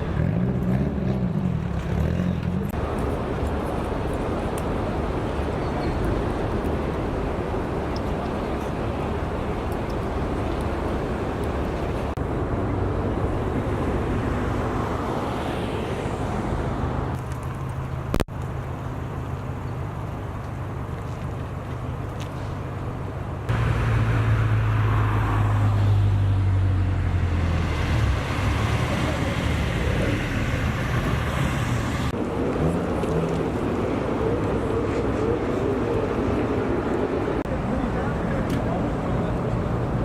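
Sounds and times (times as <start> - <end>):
car engines running: 0.0 - 40.0
traffic noise: 0.0 - 40.0.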